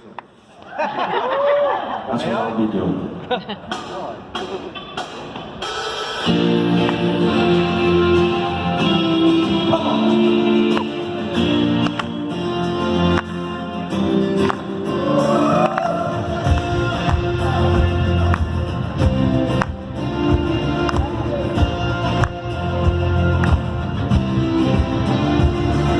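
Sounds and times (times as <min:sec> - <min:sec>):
rock band playing: 0:03.7 - 0:25.9.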